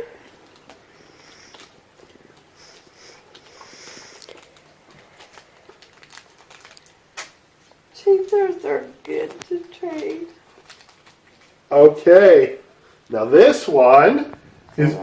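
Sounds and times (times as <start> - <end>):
packaging rustling and crinkling: 0.2 - 11.7.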